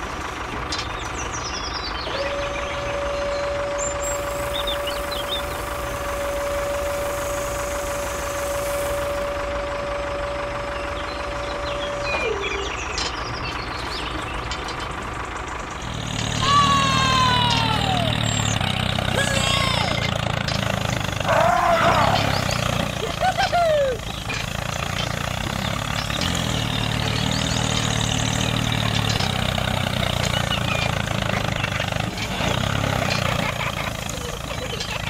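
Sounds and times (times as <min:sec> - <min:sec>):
truck engine idling: 0:00.0 - 0:35.0
cry sliding down in pitch: 0:16.4 - 0:18.4.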